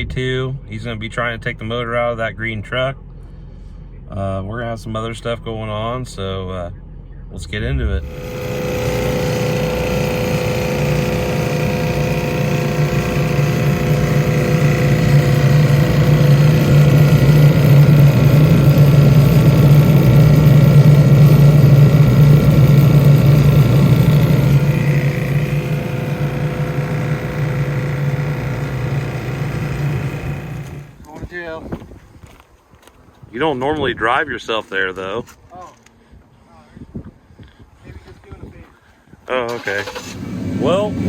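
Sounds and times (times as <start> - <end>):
vehicle engine running: 6.8 - 31.0, 39.7 - 41.0.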